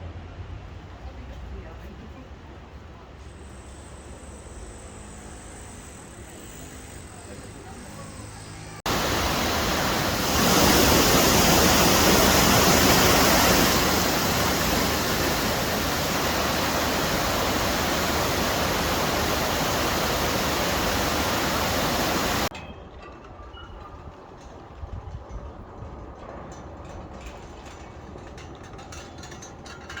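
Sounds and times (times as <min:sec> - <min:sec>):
water rushing: 0:08.9 - 0:22.5.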